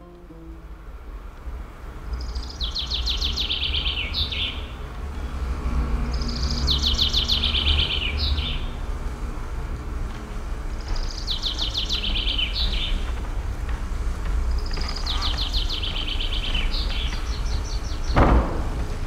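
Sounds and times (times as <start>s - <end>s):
steady low rumble: 0.0s - 2.6s.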